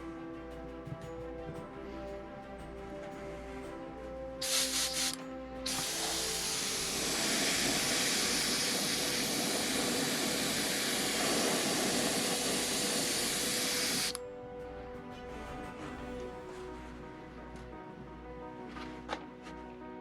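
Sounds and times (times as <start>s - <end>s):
background music: 0.0s - 20.0s
paint sprayer hissing: 4.4s - 14.2s.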